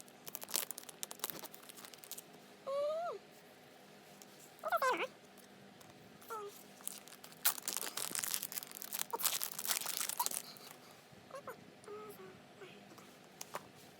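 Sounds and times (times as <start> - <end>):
packaging tearing and crinkling: 0.2 - 2.3, 6.8 - 10.7.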